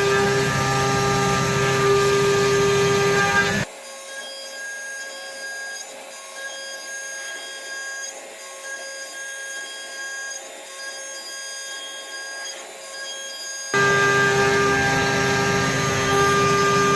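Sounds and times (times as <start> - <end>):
milling cutting noise: 0.0 - 3.7, 13.8 - 16.9
spindle whine: 0.0 - 3.7, 13.8 - 16.9.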